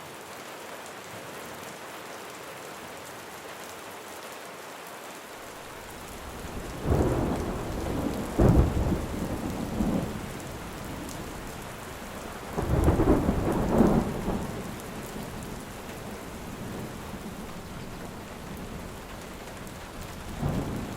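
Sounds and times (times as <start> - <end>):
steady rain: 0.0 - 20.9
thunder rolling: 5.7 - 20.9.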